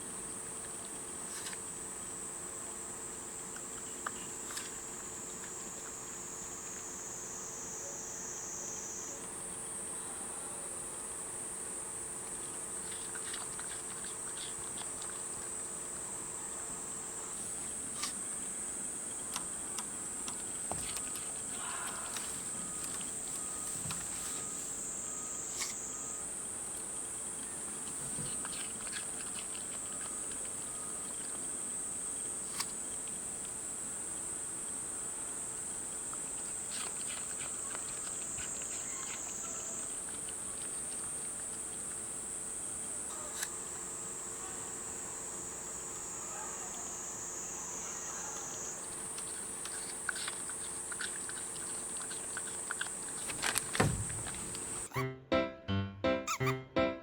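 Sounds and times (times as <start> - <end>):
insects shrilling: 10.7 - 55.0.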